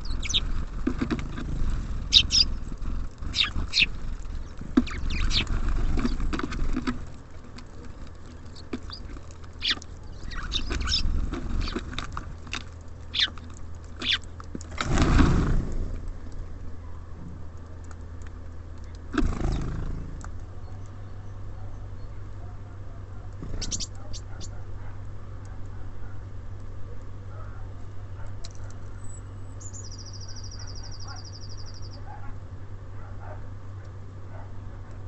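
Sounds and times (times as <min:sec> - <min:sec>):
birds tapping and clicking: 0:00.0 - 0:16.5, 0:17.4 - 0:27.2
low steady hum: 0:00.0 - 0:35.0
short high bird chirps: 0:29.0 - 0:32.0.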